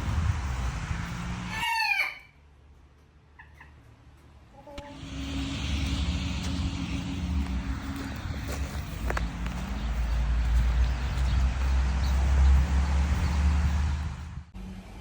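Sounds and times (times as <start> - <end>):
rooster crowing: 1.4 - 2.4
noisy background: 3.9 - 15.0
low hum: 4.7 - 15.0.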